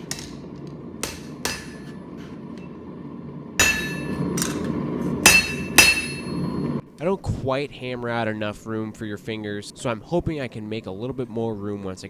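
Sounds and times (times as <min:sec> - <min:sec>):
hammer striking steel on anvil: 0:00.0 - 0:02.7, 0:03.6 - 0:06.7.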